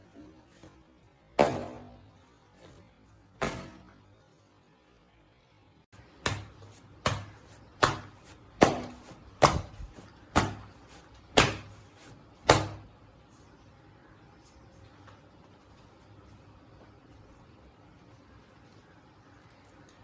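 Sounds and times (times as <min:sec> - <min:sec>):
dough slapping on work surface: 0:06.0 - 0:13.0.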